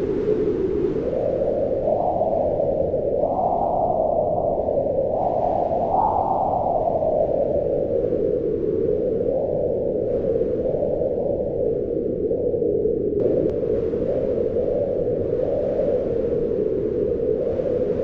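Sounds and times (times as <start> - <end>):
wind howling: 0.0 - 18.0.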